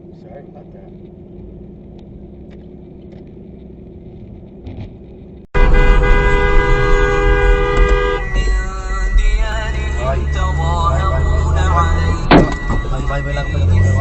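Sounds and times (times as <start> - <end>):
low vehicle hum: 0.0 - 14.0
car horn blast: 5.6 - 14.0.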